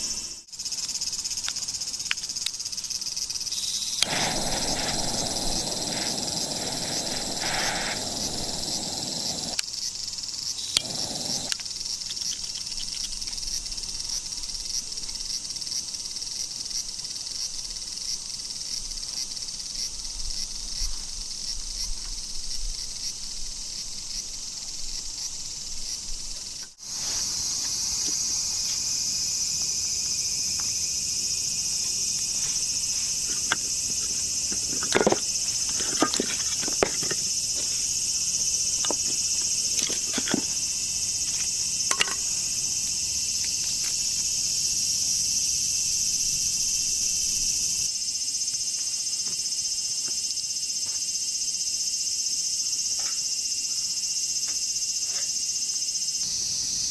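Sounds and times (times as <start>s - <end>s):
insects chorus: 0.0s - 56.9s
sharp clicks and knocks: 41.4s - 42.3s.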